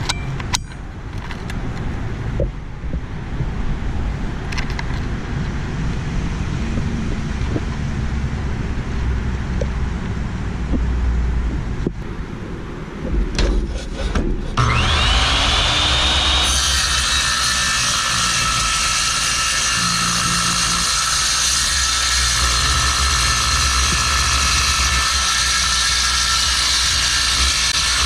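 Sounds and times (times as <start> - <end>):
circular saw cutting steel plate: 13.4 - 28.0.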